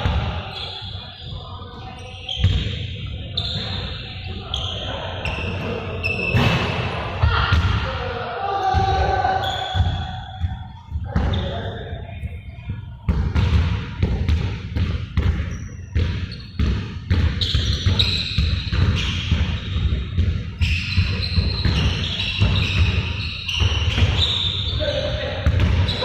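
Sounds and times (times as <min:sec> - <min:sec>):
high short squeaks: 0:03.3 - 0:06.7, 0:20.6 - 0:25.0
balls bouncing on hard floor: 0:12.3 - 0:24.4, 0:25.4 - 0:26.0.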